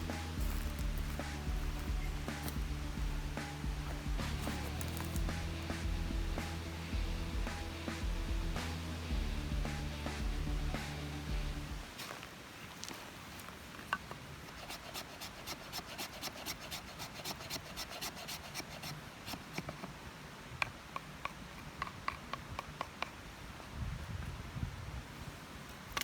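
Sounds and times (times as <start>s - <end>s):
hand tool scraping wood: 0.0s - 5.8s, 13.9s - 20.0s.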